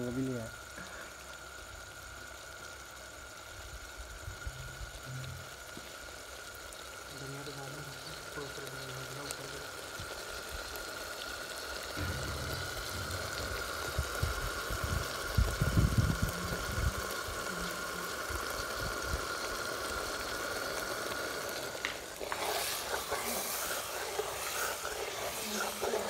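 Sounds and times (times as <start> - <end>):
curry sizzling in a pot: 0.0 - 26.0
faint steady whine: 0.0 - 26.0
metal ladle stirring: 22.0 - 26.0.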